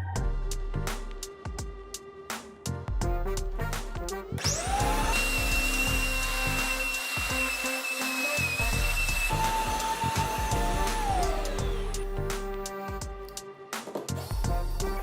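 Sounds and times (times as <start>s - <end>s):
background music: 0.0s - 15.0s
electric blower motor whine: 4.4s - 12.7s.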